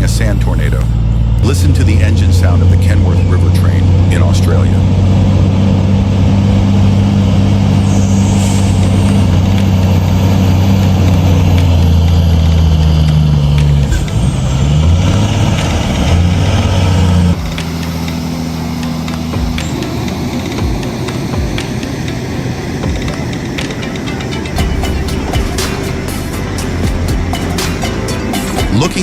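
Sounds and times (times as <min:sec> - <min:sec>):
truck diesel engine droning: 0:00.0 - 0:29.0
air hiss: 0:07.7 - 0:11.0.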